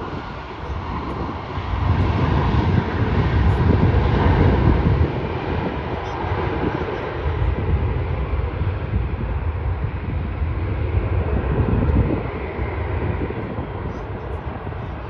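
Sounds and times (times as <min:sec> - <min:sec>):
jet airliner passing: 0:00.0 - 0:15.0.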